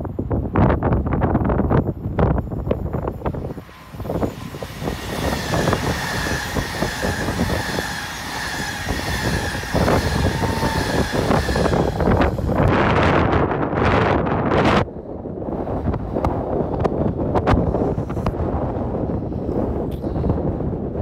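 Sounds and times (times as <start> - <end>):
high train whine: 0.0 - 15.9
train wheels clattering on rails: 3.3 - 12.6.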